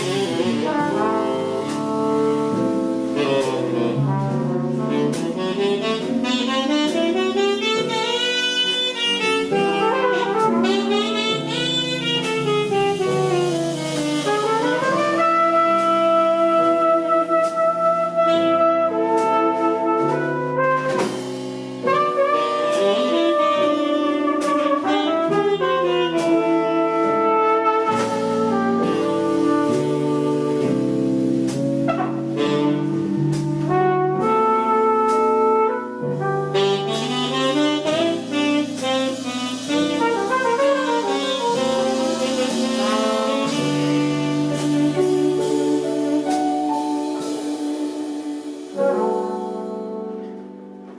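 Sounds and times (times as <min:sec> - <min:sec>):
instrumental jazz ballad: 0:00.0 - 0:50.9
lead horn playing melody: 0:00.0 - 0:50.9.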